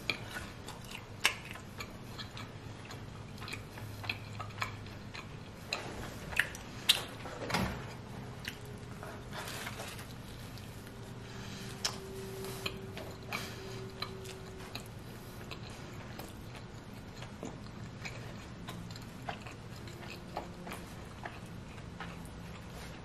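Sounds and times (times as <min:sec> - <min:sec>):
close chewing: 0:00.0 - 0:23.0
faint steady hum: 0:00.0 - 0:23.0
wet mouth clicks and smacks: 0:06.3 - 0:07.2.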